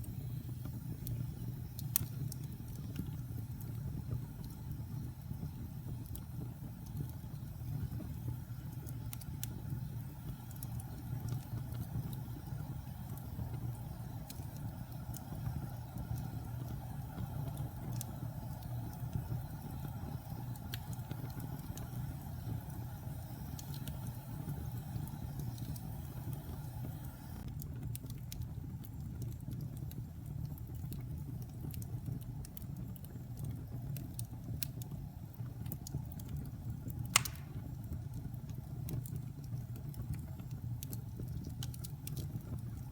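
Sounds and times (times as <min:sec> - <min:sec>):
wood fire crackling: 0:00.0 - 0:42.9
sharp loud pop of fire: 0:37.1 - 0:37.6.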